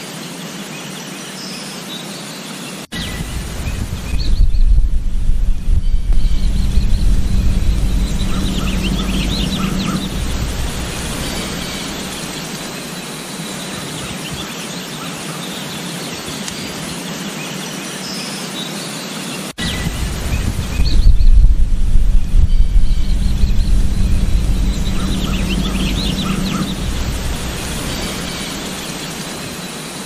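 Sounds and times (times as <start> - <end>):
wind buffeting microphone: 2.9 - 13.2, 19.6 - 29.8
wind hissing: 2.9 - 14.0, 19.6 - 30.0.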